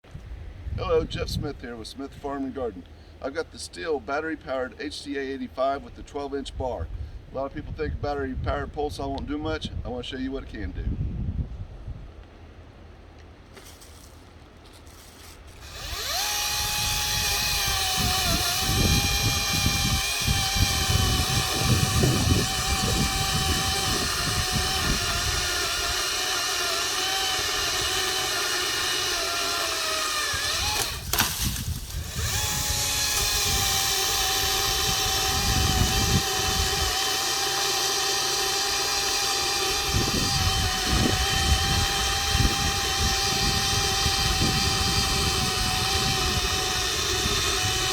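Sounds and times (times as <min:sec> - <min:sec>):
pole saw motor whine: 0:15.5 - 0:47.9.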